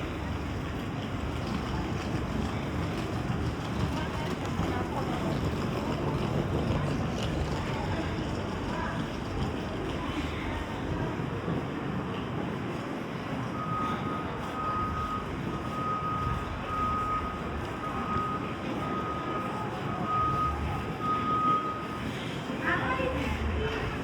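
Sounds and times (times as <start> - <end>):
street traffic rumble: 0.0 - 24.0
reversing alarm beeping: 13.4 - 22.4.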